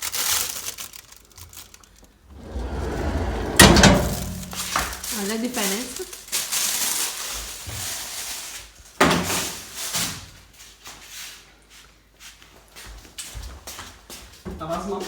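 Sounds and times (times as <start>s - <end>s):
lid or door shutting clunk: 2.3s - 4.9s.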